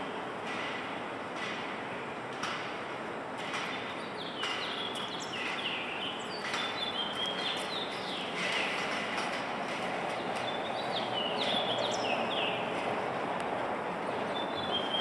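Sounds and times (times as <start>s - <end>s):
songbirds whistling chirps: 3.7s - 8.9s, 10.1s - 12.7s, 14.1s - 15.0s.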